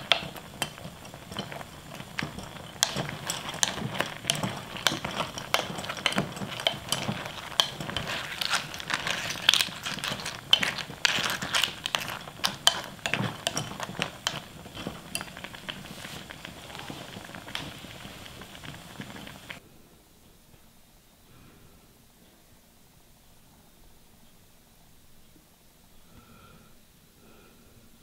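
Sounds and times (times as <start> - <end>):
clam shells clicking: 0.0 - 14.6
soup bubbling: 0.0 - 19.6
spoon stirring: 0.0 - 19.6.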